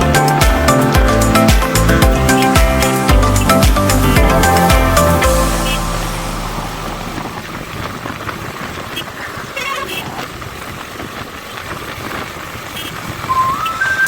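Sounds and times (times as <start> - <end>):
music: 0.0 - 7.5, 13.3 - 14.0
motorcycle road noise: 0.0 - 14.0.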